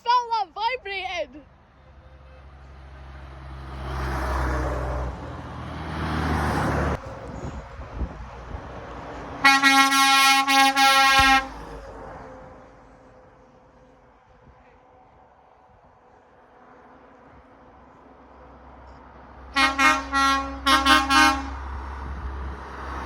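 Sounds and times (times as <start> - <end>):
trucks passing: 0.0 - 23.0
truck air horn blaring: 1.8 - 2.6, 9.4 - 11.8, 19.5 - 21.7.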